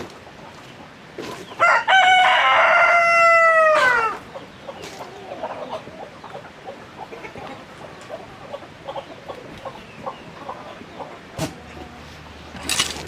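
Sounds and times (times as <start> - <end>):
chickens clucking: 0.0 - 13.0
rooster crowing: 1.6 - 4.2.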